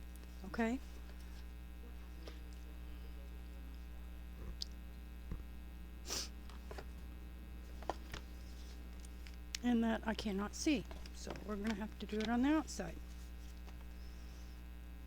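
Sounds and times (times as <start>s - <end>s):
electrical mains hum: 0.0s - 15.0s
paper rustling: 6.5s - 7.0s, 7.6s - 9.4s, 10.2s - 14.5s.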